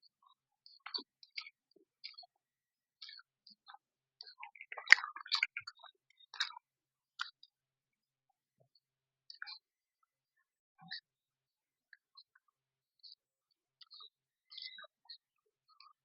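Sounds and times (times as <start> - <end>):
wet chewing clicks: 4.3 - 6.6.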